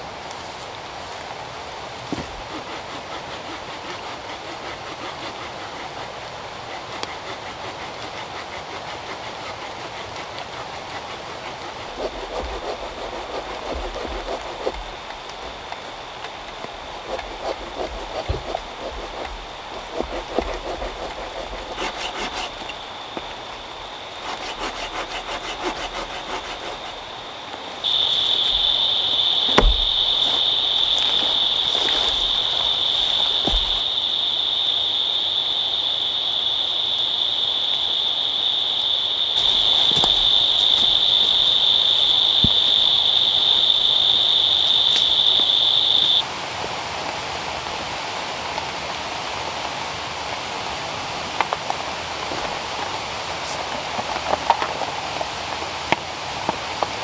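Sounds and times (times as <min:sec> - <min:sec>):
insects droning: 0:00.0 - 0:57.0
sharp knocks: 0:29.4 - 0:33.8.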